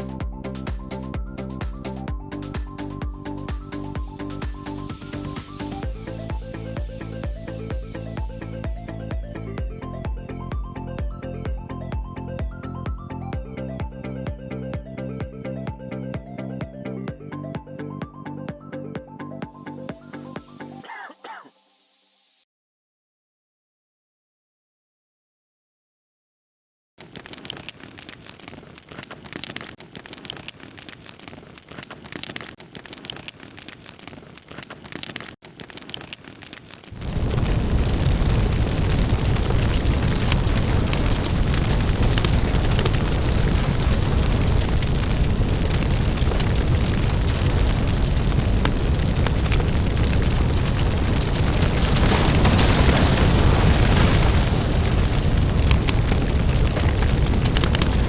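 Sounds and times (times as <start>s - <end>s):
match heads igniting crackling: 27.2s - 58.0s
dense rush of burning: 36.9s - 58.0s.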